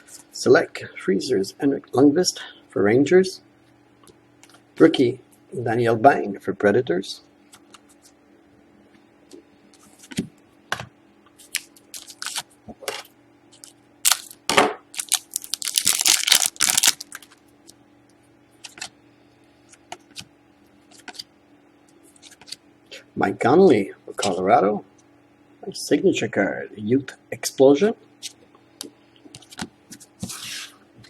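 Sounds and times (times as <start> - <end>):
card packaging clicks and rustles: 11.4 - 12.5, 13.5 - 17.4
packaging tearing and crinkling: 11.4 - 12.5, 13.6 - 17.4.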